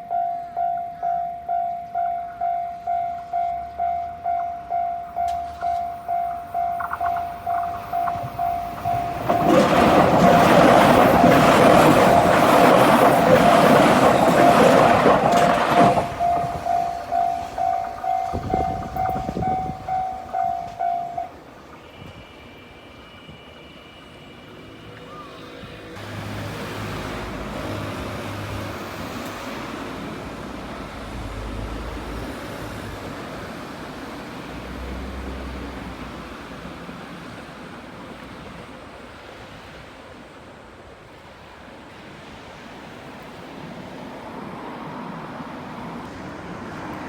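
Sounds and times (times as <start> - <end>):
level crossing warning bell: 0.0 - 24.6
train rumble: 0.0 - 47.0.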